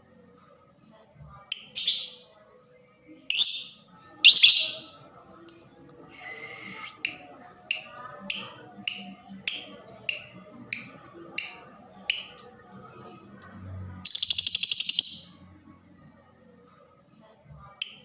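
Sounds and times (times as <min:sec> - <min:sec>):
lovebird chattering trill: 0:04.3 - 0:04.8, 0:14.1 - 0:15.3
lovebird downward chirps: 0:04.3 - 0:04.9, 0:14.1 - 0:15.4.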